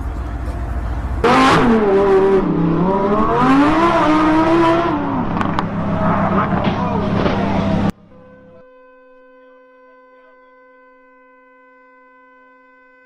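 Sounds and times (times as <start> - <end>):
car engine revving hard: 1.2 - 7.9.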